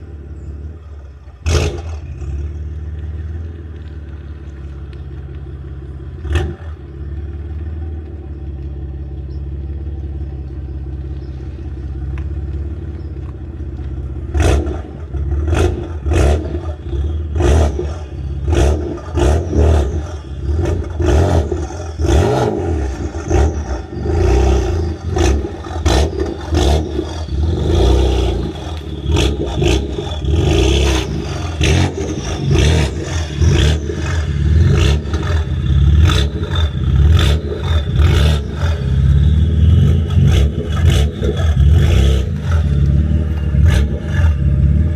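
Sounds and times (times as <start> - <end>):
car engine idling and revving: 0.0 - 44.9
exhaust cracks: 0.0 - 44.9.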